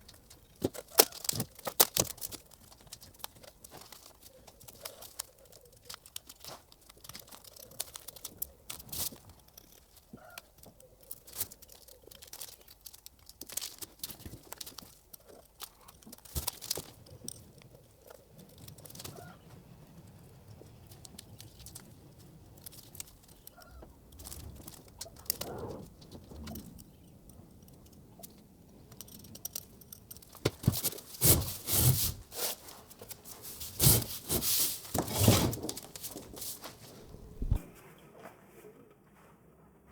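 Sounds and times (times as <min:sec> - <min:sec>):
small clicks: 0:00.0 - 0:19.4
rustling scrapes: 0:30.7 - 0:39.9.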